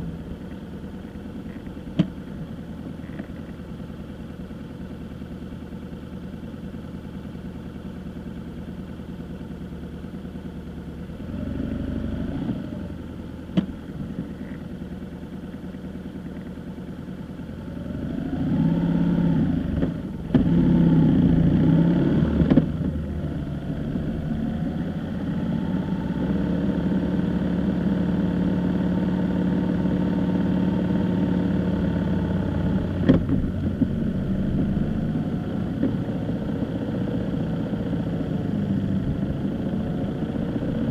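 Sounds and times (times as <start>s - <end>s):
vehicle engine accelerating: 17.6s - 40.9s.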